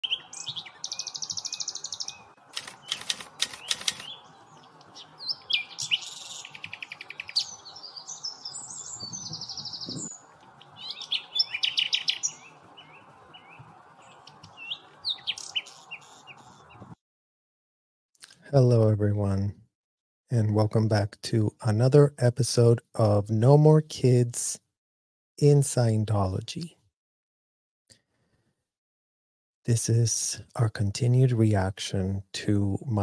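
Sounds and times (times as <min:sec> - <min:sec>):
birds chirping and trilling: 0:00.0 - 0:17.0.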